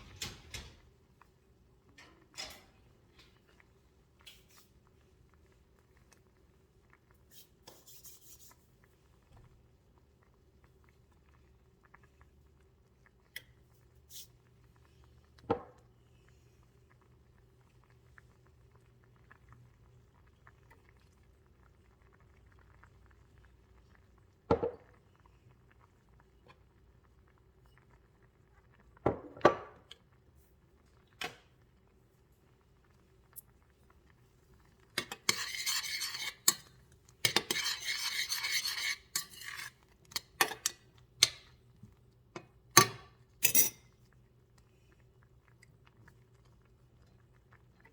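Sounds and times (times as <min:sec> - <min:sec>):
cutlery clinking on dishes: 0:00.0 - 0:00.8, 0:02.0 - 0:02.8, 0:35.0 - 0:36.7, 0:37.3 - 0:41.5, 0:42.8 - 0:43.8.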